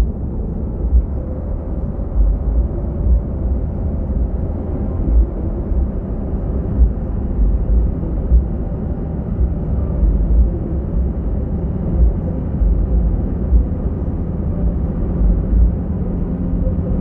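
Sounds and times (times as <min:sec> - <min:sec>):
bus engine and road rumble: 0:00.0 - 0:17.0
low thumps: 0:05.0 - 0:05.8, 0:06.8 - 0:08.7, 0:11.9 - 0:13.8.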